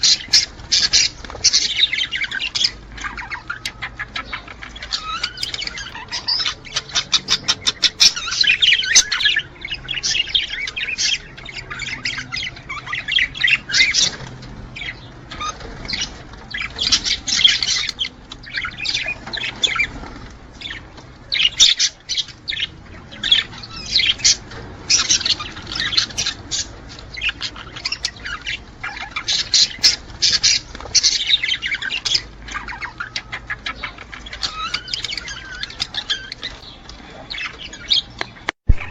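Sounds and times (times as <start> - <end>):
budgerigars chattering and squawking: 0.0 - 38.9.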